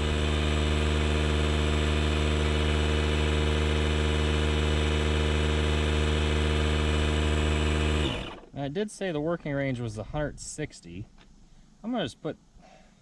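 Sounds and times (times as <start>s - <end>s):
air inflator compressor humming: 0.0s - 8.5s.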